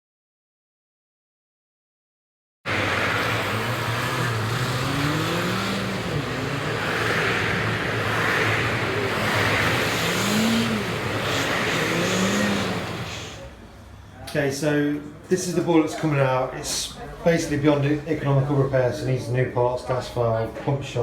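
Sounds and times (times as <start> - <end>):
faint rising and falling tones: 2.7 - 13.6
vehicle engine and road noise: 2.7 - 14.2.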